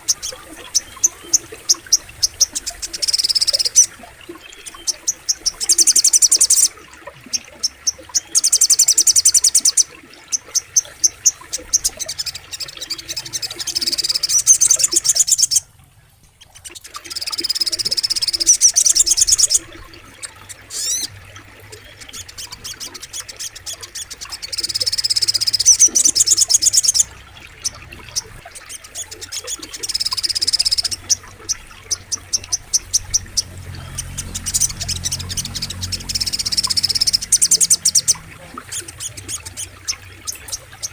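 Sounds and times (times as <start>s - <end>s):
bird calling rapid high notes: 0.0s - 6.8s, 16.5s - 21.2s
bird chirps: 0.0s - 15.7s, 16.4s - 21.1s, 21.7s - 40.9s
frogs: 0.0s - 40.9s.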